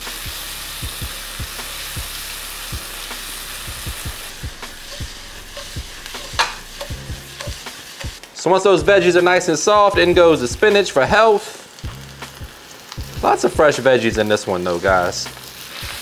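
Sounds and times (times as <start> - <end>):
vegetables sizzling in skillet: 0.0 - 16.0
utensil knocking against pan: 4.6 - 8.2.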